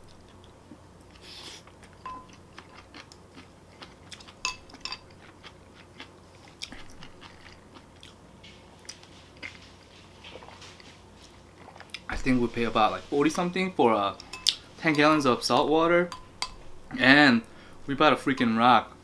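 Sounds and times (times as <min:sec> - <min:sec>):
close chewing of food: 0:00.0 - 0:12.2.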